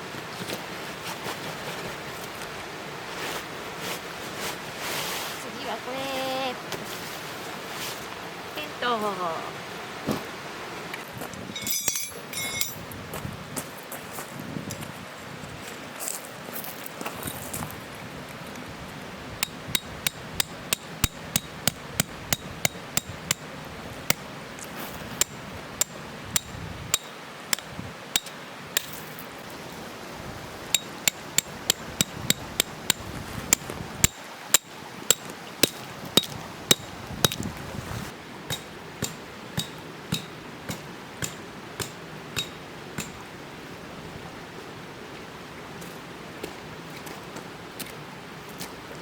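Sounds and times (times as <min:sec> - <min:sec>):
tent pegs hammered metal strikes: 0:11.5 - 0:12.9, 0:19.4 - 0:23.5, 0:25.2 - 0:29.0, 0:30.7 - 0:37.4, 0:38.5 - 0:43.3.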